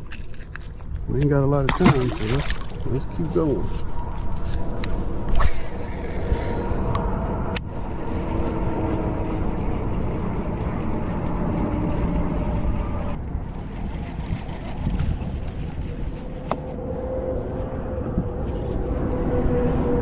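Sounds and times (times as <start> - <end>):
small boat motor running: 7.6 - 16.8.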